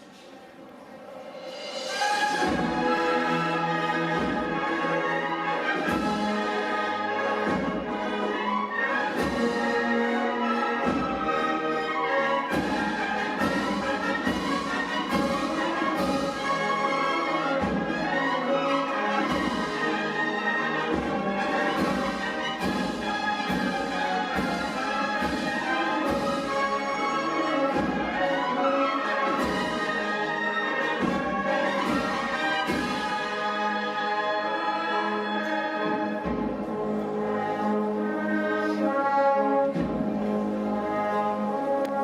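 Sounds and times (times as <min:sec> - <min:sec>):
brass band playing a march: 0:01.4 - 0:42.0
drum strikes: 0:20.8 - 0:26.8.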